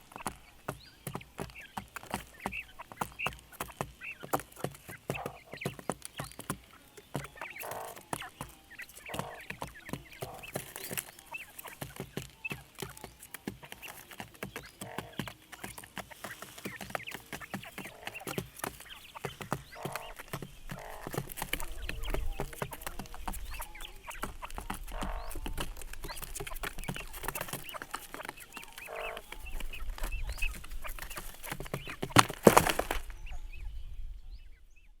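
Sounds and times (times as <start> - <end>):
rustling and scratching: 0.0 - 33.4
fowl clucking: 7.4 - 11.7, 16.2 - 25.8.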